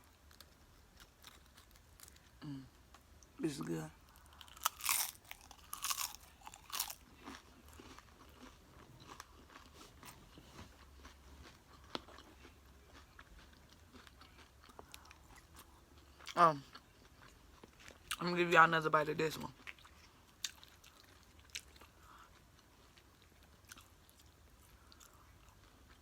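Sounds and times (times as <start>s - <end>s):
tortilla chips crunching: 0.1s - 2.4s, 4.2s - 15.6s
soft chewing with clicks: 4.1s - 18.2s, 19.5s - 26.0s.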